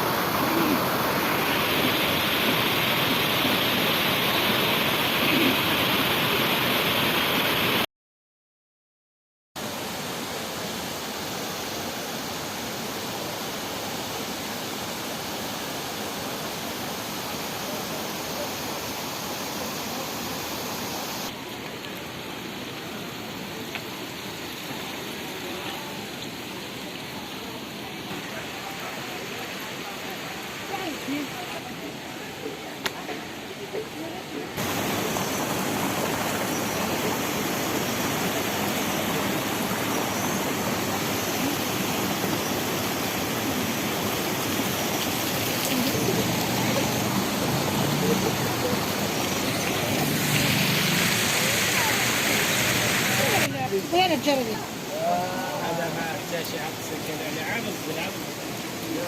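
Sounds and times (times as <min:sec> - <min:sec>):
waterfall rushing: 0:00.0 - 0:07.9, 0:09.6 - 0:59.0.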